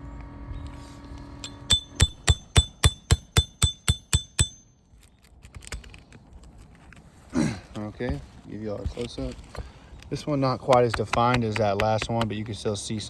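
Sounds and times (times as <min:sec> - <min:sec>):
hammer tapping shingle: 0:01.4 - 0:04.7, 0:10.5 - 0:12.6.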